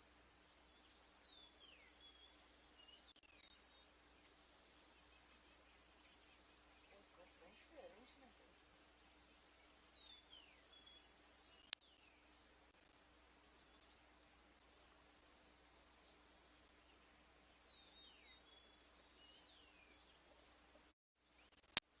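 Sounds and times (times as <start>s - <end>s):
crickets chirping: 0.0s - 22.0s
faint bird chirps: 0.0s - 22.0s.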